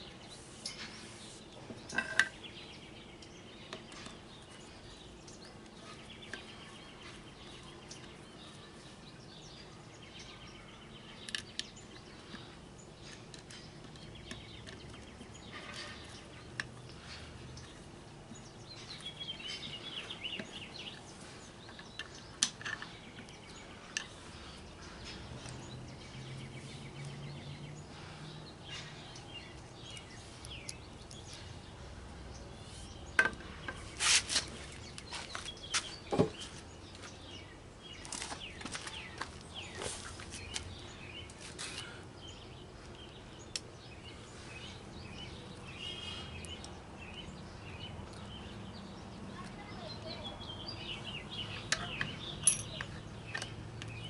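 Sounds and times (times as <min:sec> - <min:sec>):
birds chirping: 0:00.0 - 0:54.0
clicks of metal parts handled: 0:51.6 - 0:54.0.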